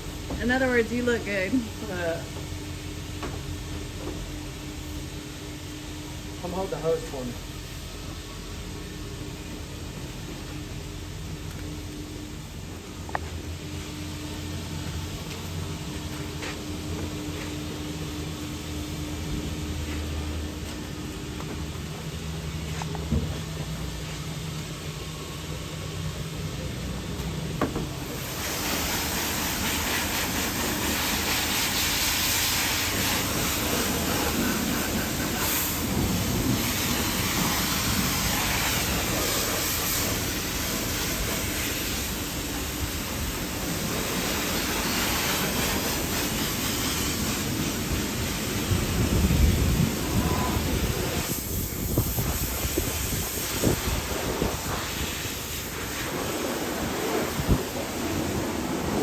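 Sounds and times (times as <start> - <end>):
low steady hum: 0.0 - 28.3
water spraying from hose: 27.9 - 59.0.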